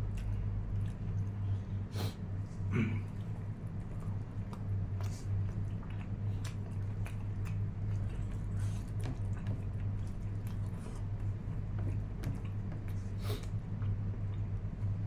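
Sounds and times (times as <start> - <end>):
low steady hum: 0.0 - 15.0
person chewing: 2.4 - 14.0.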